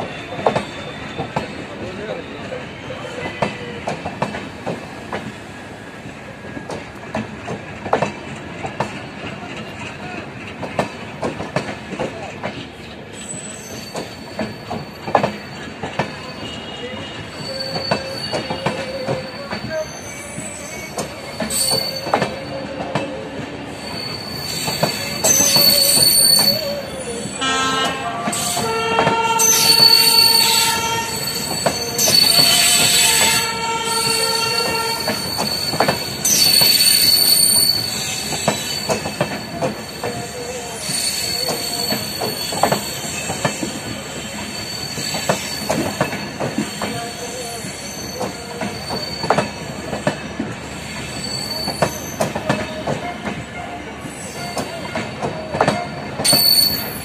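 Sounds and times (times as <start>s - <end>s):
wheels squealing: 13.1s - 27.6s, 28.3s - 57.0s.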